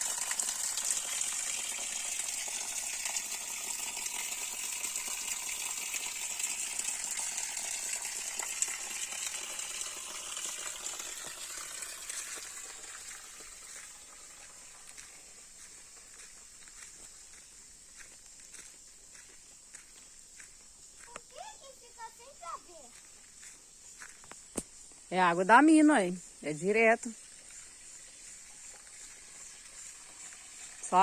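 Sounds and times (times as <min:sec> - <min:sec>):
water pouring from spout: 0:00.0 - 0:15.5, 0:27.3 - 0:31.0.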